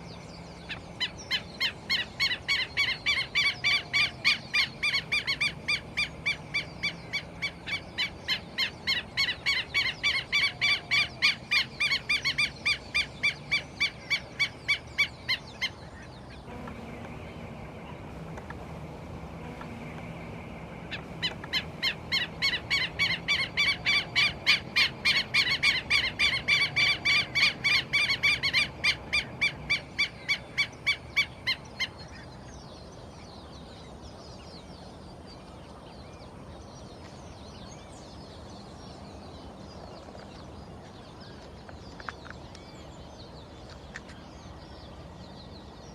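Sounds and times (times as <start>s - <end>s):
bird yelping calls: 20.9s - 32.0s.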